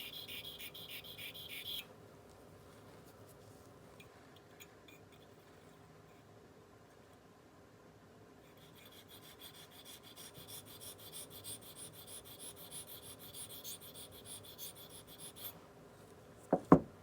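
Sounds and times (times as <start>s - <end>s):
sharpening stone scraping metal: 0.0s - 1.8s, 8.5s - 15.6s.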